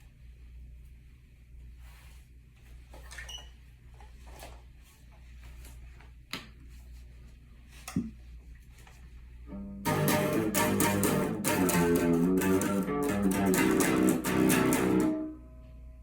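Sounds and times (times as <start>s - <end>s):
guitar playing plucked notes: 9.5s - 15.7s.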